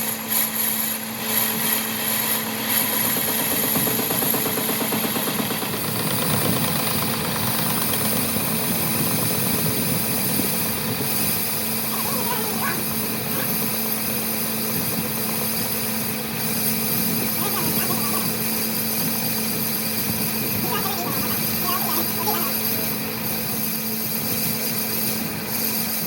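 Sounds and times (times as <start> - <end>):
workshop machine humming: 0.0 - 26.0.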